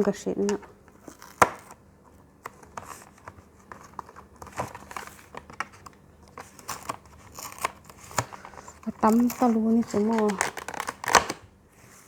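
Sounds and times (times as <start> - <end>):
fruit skin crinkling and rustling: 0.0 - 11.4
small tearing sounds: 6.4 - 11.4.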